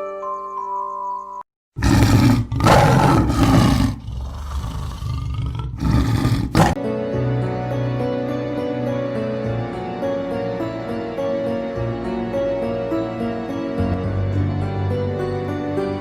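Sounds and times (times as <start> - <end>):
loud rough roar: 1.8 - 6.8.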